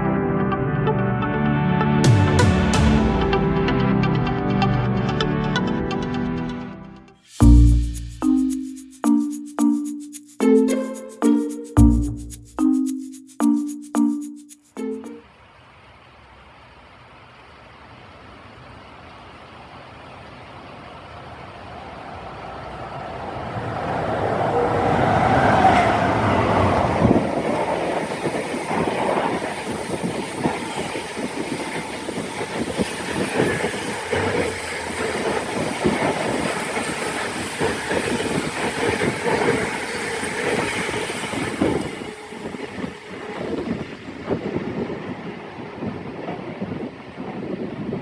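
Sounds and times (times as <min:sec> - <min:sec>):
train rumble passing: 0:20.7 - 0:47.8
train wheel clatter: 0:25.2 - 0:45.2.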